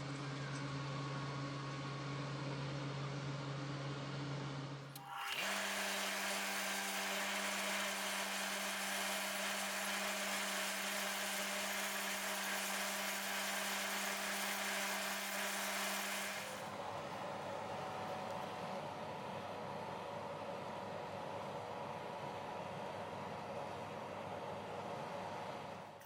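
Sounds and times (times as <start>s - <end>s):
electric motor humming: 4.9s - 16.8s.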